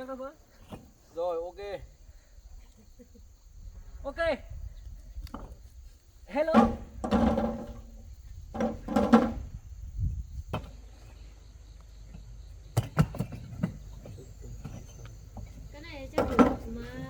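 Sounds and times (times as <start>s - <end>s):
crickets chirring: 0.0s - 17.0s
sharp knocks: 6.5s - 7.9s, 8.6s - 9.5s.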